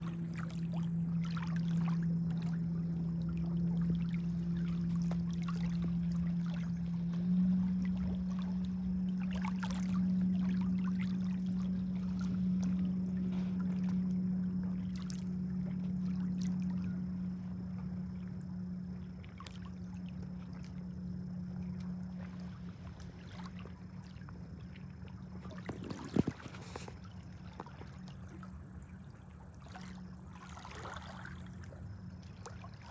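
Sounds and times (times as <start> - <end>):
motorboat engine droning: 0.0 - 32.9.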